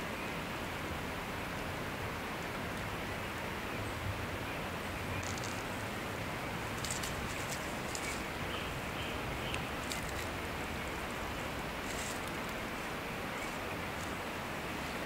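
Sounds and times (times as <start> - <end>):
faint fire crackles: 4.8 - 15.0.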